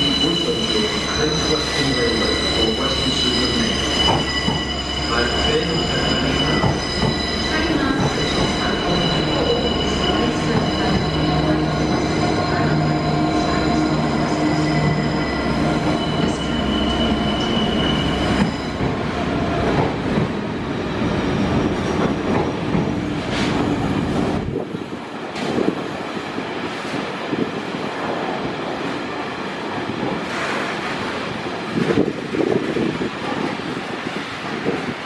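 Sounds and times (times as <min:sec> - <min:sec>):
diesel locomotive engine drone: 0:00.0 - 0:25.8.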